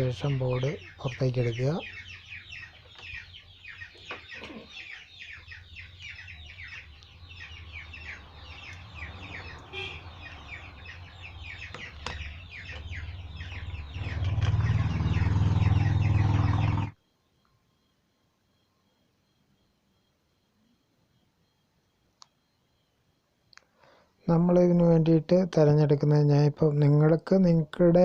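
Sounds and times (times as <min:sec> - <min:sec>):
chickens clucking and peeping: 0:00.2 - 0:16.6.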